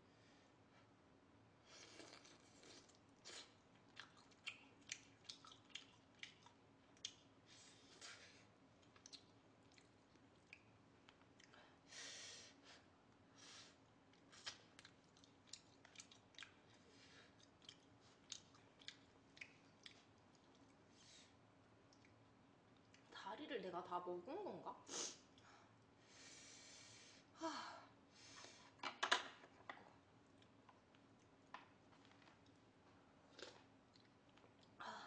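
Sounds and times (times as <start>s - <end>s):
faint chewing: 1.7s - 11.7s, 13.1s - 23.1s, 29.6s - 34.8s
soft breathy hisses: 26.0s - 27.3s.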